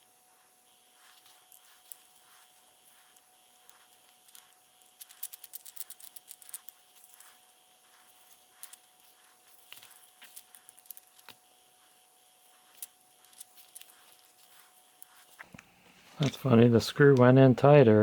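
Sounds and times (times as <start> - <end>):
faint steady hum: 0.0 - 18.0
small metal parts clicking: 3.6 - 7.3, 8.6 - 8.8, 9.6 - 11.4, 12.7 - 14.2.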